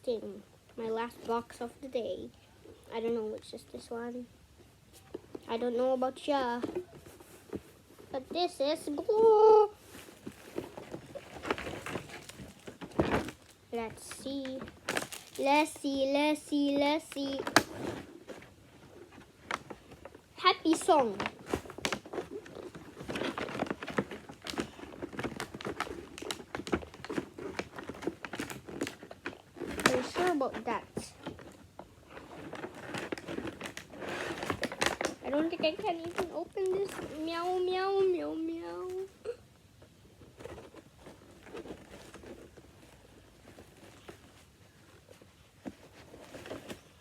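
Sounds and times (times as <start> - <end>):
hands rustling cardboard box: 4.9 - 39.2, 39.8 - 47.0
packaging crinkling: 9.1 - 15.8, 17.1 - 38.0, 40.2 - 47.0.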